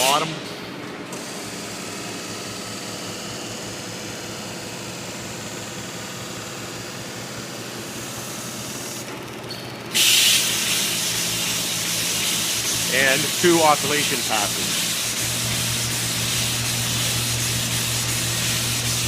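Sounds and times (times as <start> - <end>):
loud hiss: 10.0 - 19.0
polishing belt machine running: 10.3 - 19.0.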